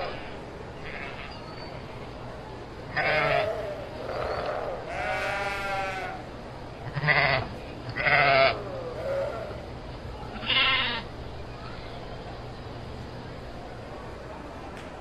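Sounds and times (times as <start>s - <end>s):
sheep bleating: 2.9s - 6.2s, 6.9s - 9.6s, 10.4s - 11.1s.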